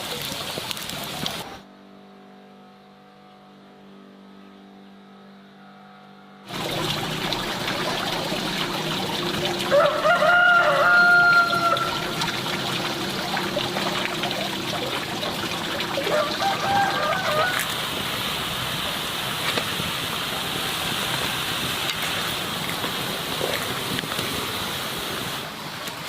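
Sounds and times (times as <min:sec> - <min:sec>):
chicken call: 0:09.5 - 0:13.5, 0:16.0 - 0:17.8
steady hiss: 0:17.6 - 0:26.0.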